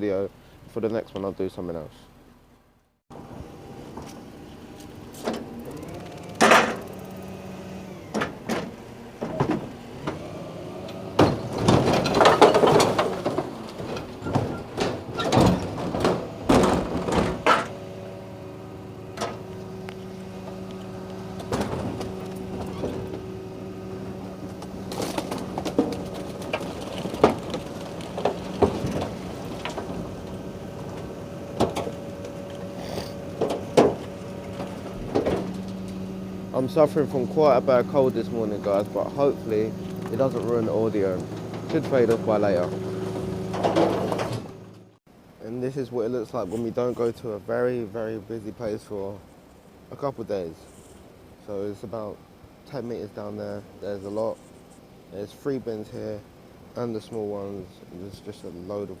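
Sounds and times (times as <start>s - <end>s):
hydraulics humming: 0.0s - 59.0s
rubbish crunching: 4.6s - 17.8s, 19.2s - 44.9s
bin and rubbish clattering: 5.2s - 6.8s, 8.1s - 17.8s, 21.2s - 23.4s, 24.2s - 36.0s, 37.8s - 44.8s.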